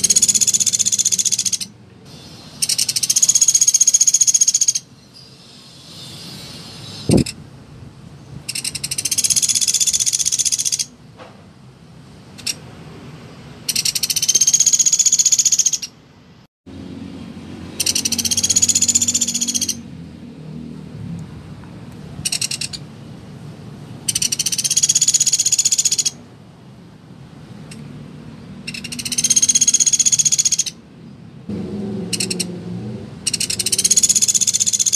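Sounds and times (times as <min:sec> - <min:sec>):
woodpecker rattling trills: 0:00.0 - 0:01.8, 0:02.6 - 0:04.9, 0:08.5 - 0:10.9, 0:13.7 - 0:15.9, 0:17.8 - 0:19.8, 0:22.2 - 0:22.8, 0:24.1 - 0:26.2, 0:28.7 - 0:30.8, 0:32.2 - 0:32.5, 0:33.3 - 0:34.9.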